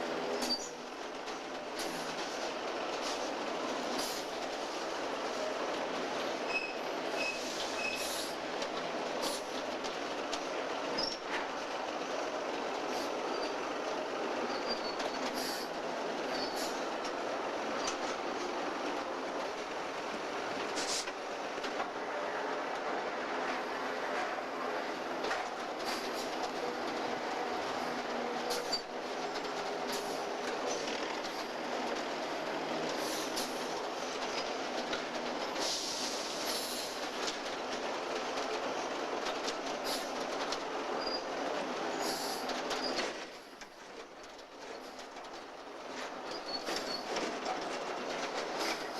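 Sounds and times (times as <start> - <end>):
train wheels on rail: 0.0 - 48.9
wheel squeals: 0.4 - 0.8, 6.5 - 8.3, 10.9 - 11.3, 12.9 - 13.6, 14.5 - 15.7, 16.3 - 16.8, 28.4 - 28.9, 41.0 - 41.3, 41.9 - 43.2, 46.2 - 47.2
high-pitched wheel squeals: 6.5 - 8.1.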